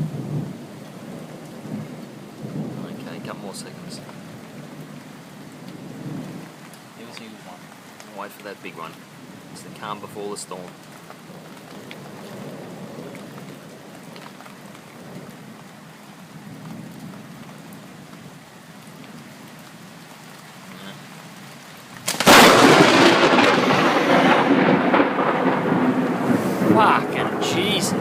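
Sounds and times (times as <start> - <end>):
steady rain: 0.0 - 28.0
thunder crack and rumble: 22.0 - 28.0.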